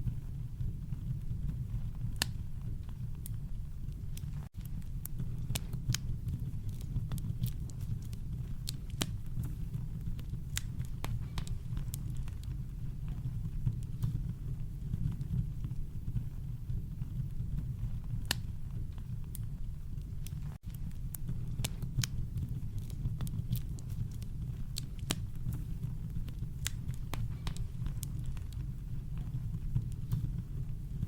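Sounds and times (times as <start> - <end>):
campfire crackling: 0.3 - 31.0.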